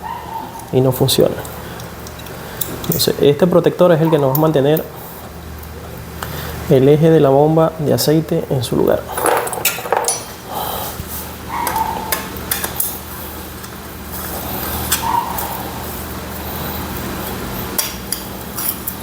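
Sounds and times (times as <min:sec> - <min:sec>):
steady low hum: 0:00.0 - 0:19.0
metal tools clinking: 0:09.1 - 0:10.4.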